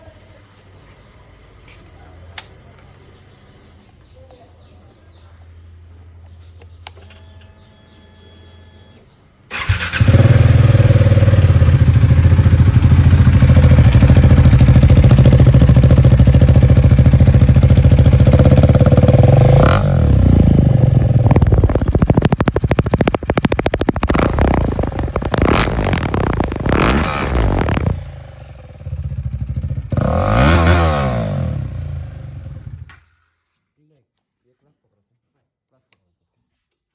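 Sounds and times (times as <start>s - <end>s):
motorcycle engine starting and running: 5.7s - 33.1s.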